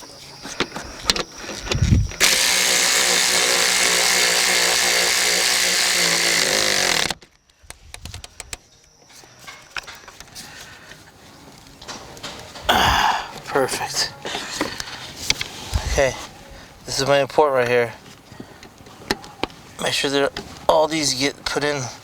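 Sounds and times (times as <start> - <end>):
handheld power tool running: 2.1 - 7.2.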